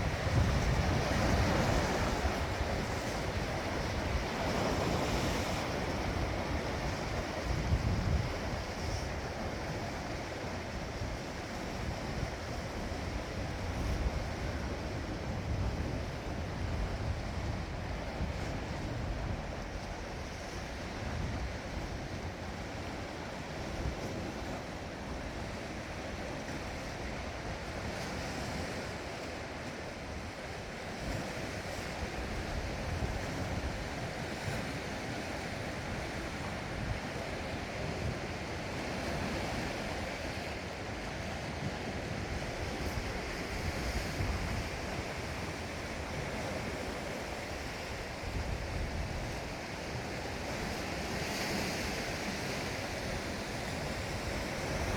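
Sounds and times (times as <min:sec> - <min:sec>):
wind buffeting microphone: 0:00.0 - 0:10.1
sea waves washing on shore: 0:00.0 - 0:54.9.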